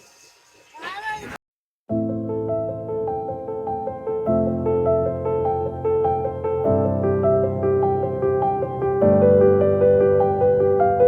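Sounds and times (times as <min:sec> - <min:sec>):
keyboard melody music: 0:01.9 - 0:11.0.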